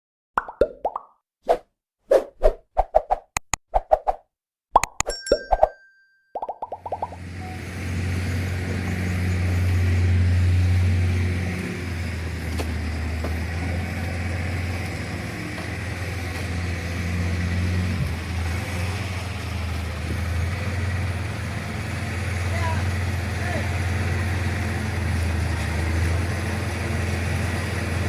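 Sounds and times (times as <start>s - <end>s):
diesel truck engine running: 7.0s - 28.0s.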